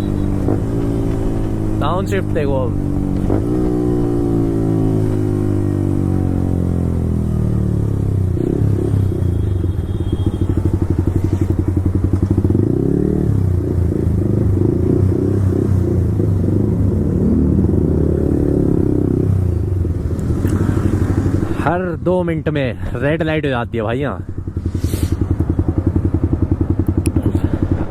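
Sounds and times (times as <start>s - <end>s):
motorcycle engine burbling: 0.0s - 16.9s, 23.0s - 27.9s.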